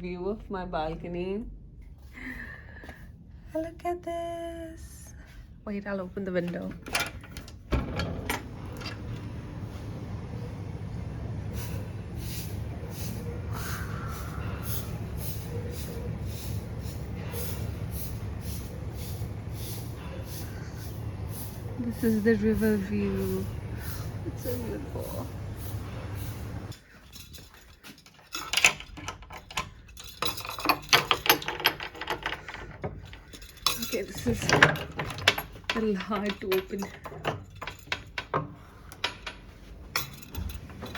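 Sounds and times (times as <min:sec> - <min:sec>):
sharp clicks and metallic rattles: 0:06.3 - 0:09.4, 0:27.2 - 0:40.9.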